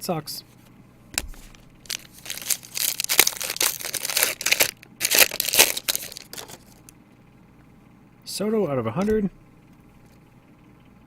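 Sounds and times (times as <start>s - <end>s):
plastic wrapper crinkling: 1.2s - 6.9s.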